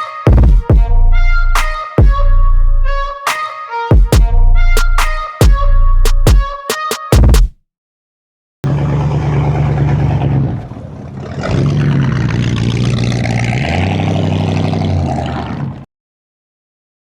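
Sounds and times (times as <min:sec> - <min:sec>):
car engine running: 0:08.6 - 0:14.7.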